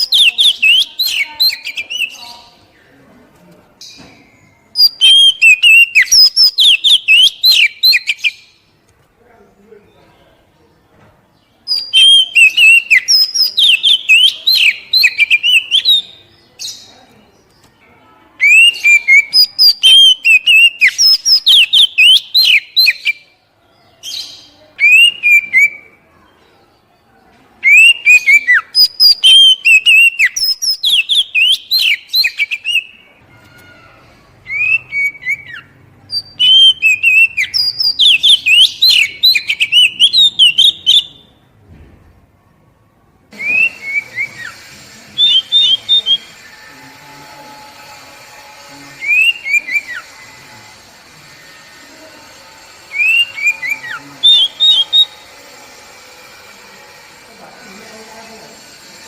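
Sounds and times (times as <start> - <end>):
bird singing whistled notes: 0.0 - 2.5, 4.4 - 8.6, 11.7 - 16.9, 18.4 - 23.3, 24.1 - 25.9, 27.6 - 33.1, 34.5 - 41.4, 43.4 - 44.6, 45.2 - 46.4, 49.0 - 50.1, 52.9 - 55.3.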